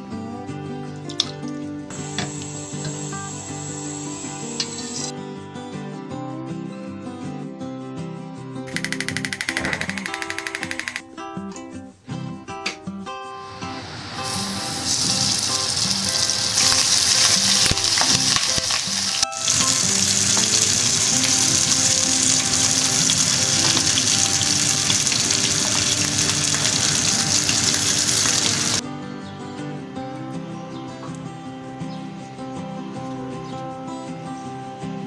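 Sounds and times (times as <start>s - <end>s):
chicken sizzling in oil: 2.0s - 5.1s, 13.4s - 28.8s.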